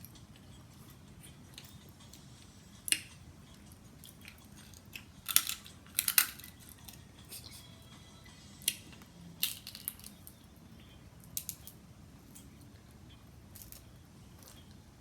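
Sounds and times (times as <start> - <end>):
crab shells cracking: 4.1 - 7.0, 8.6 - 10.4, 11.2 - 11.8, 13.5 - 14.6.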